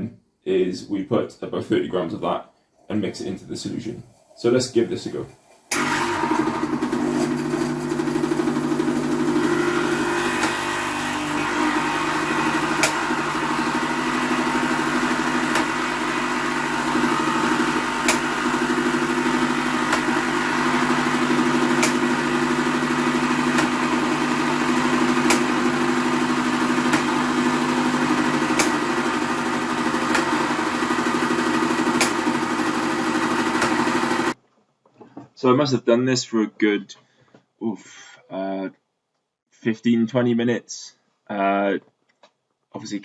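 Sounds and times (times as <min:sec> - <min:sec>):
espresso machine pump buzzing: 0:05.7 - 0:34.4.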